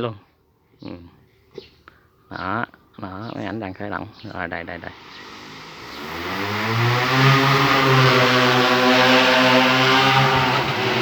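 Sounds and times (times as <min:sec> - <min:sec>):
drone propellers humming: 0:04.7 - 0:11.0.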